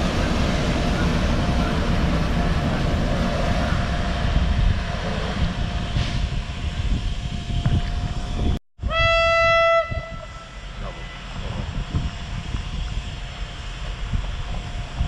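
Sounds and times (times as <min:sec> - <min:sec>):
diesel trains rumbling: 0:00.0 - 0:15.0
train horn: 0:08.8 - 0:11.2.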